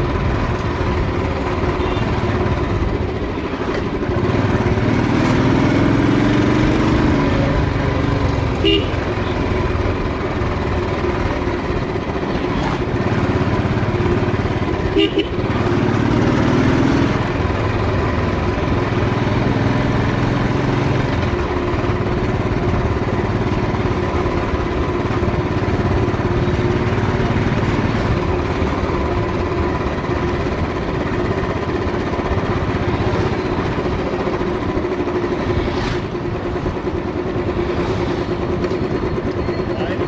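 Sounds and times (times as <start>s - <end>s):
motorcycle engine running: 0.0s - 40.0s
wind and road noise: 0.0s - 40.0s.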